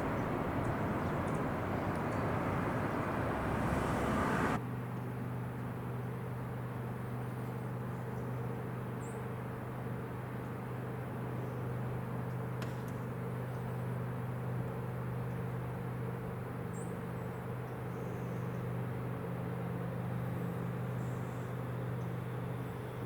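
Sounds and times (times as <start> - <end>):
boat diesel engine humming: 0.0 - 4.6.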